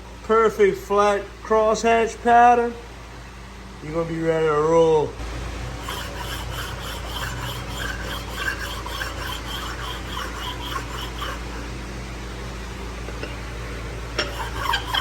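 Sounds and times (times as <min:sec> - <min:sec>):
honing stone scraping metal: 0:05.2 - 0:12.4, 0:14.1 - 0:15.0.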